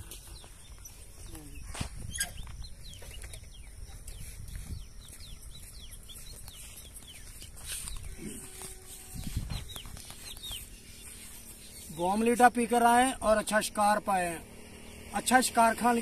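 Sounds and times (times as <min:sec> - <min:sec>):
lower bird calls: 0:00.0 - 0:12.3
small birds chirping: 0:00.0 - 0:16.0.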